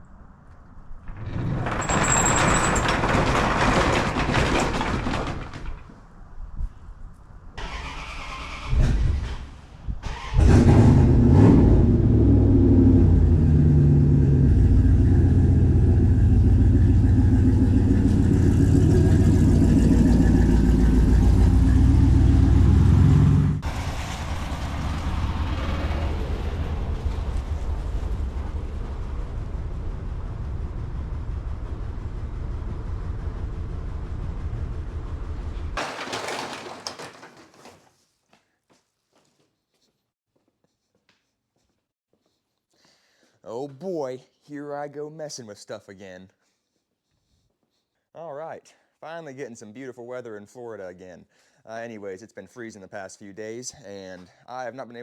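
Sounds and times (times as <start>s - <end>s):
truck engine starting and running: 7.6s - 36.8s.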